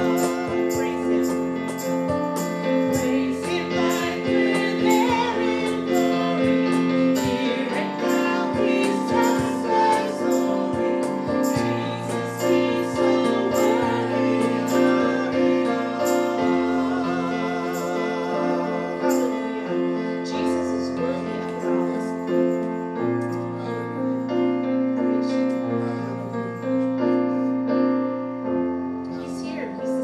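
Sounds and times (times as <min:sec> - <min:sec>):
congregation singing with women leading: 0:00.0 - 0:01.6, 0:02.7 - 0:22.3
instrumental accompaniment with beat: 0:00.0 - 0:20.5.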